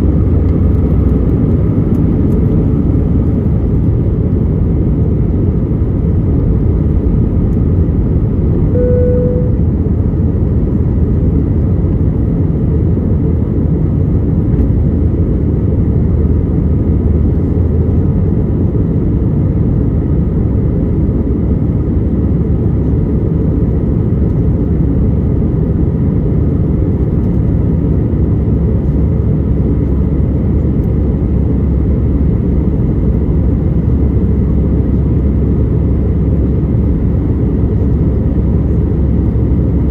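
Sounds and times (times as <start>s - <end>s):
jet engines and airflow rushing: 0.0s - 39.9s
short beep: 8.7s - 9.7s.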